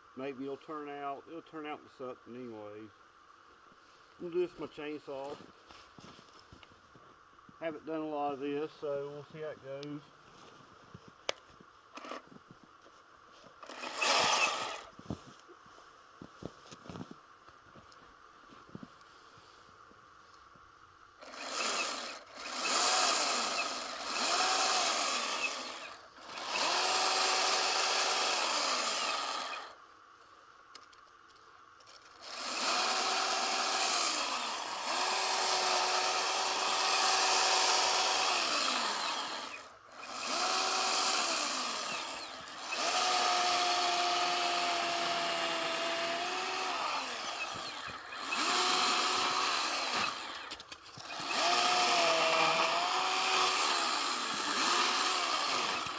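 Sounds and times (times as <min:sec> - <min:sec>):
chainsaw revving: 0:13.6 - 0:14.9, 0:21.2 - 0:29.8, 0:32.0 - 0:55.9.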